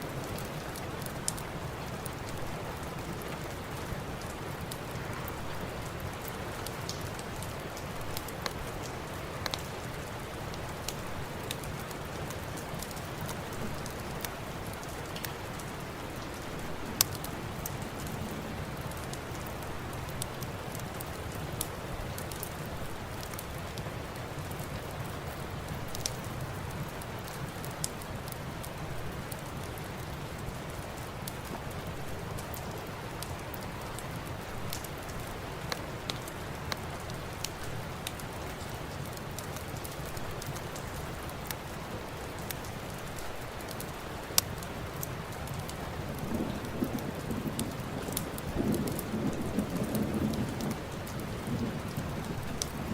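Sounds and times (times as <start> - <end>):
steady rain: 0.0 - 52.9
fireplace crackling and popping: 0.1 - 52.9.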